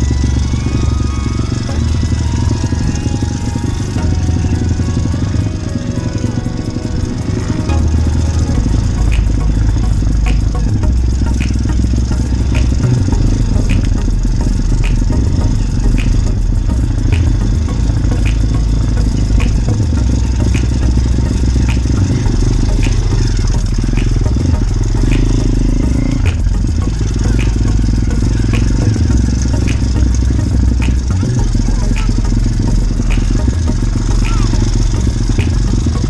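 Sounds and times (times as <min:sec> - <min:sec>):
faint repeating tick: 0:07.7 - 0:36.0.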